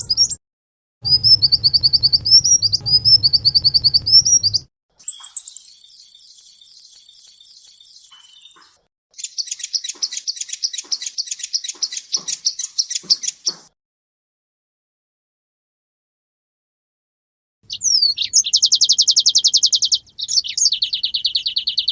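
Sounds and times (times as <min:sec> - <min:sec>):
songbird singing: 0:00.0 - 0:00.4, 0:01.1 - 0:13.7, 0:17.7 - 0:21.9
low hum: 0:01.0 - 0:04.7.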